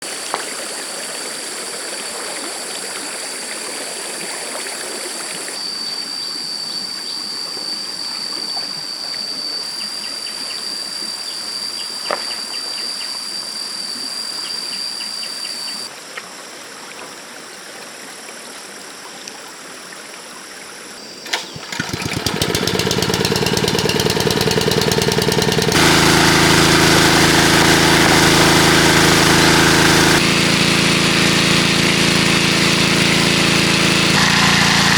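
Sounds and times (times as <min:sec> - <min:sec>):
stream water running: 0:20.9 - 0:30.4
small engine running: 0:21.1 - 0:34.9.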